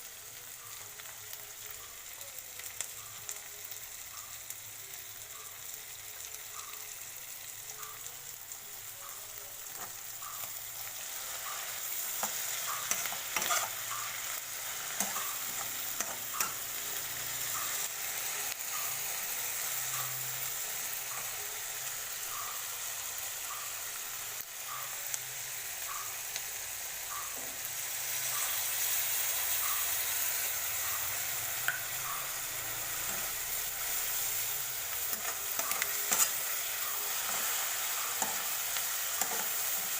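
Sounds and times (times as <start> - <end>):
oil sizzling in a wok: 0.0 - 39.9
spatula scraping a pan: 12.1 - 13.8, 35.1 - 36.4.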